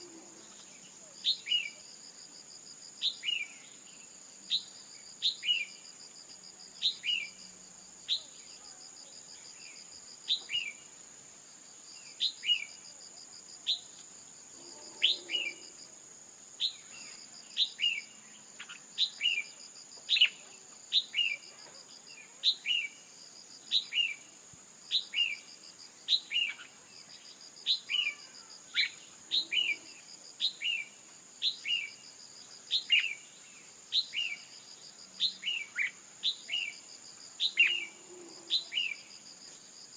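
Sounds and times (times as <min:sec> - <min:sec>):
high-pitched insect buzz: 0:14.6 - 0:16.0.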